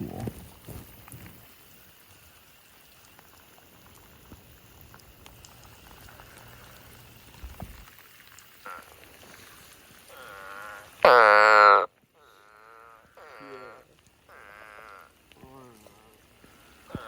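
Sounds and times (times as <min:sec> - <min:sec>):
rain hiss: 0:00.0 - 0:17.0
toads calling: 0:08.6 - 0:09.0, 0:10.1 - 0:15.2, 0:15.9 - 0:17.0.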